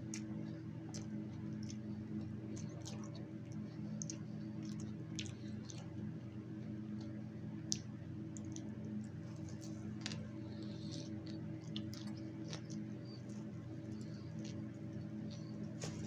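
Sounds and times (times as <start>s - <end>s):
chewing with wet mouth clicks: 0.0s - 15.9s
steady low hum: 0.0s - 16.0s.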